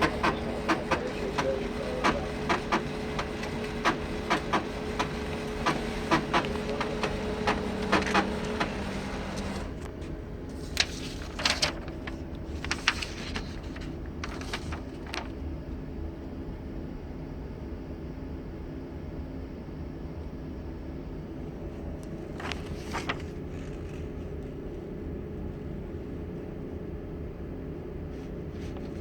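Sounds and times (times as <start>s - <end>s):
printer clicks: 0.0s - 9.9s
printer hum: 0.0s - 29.0s.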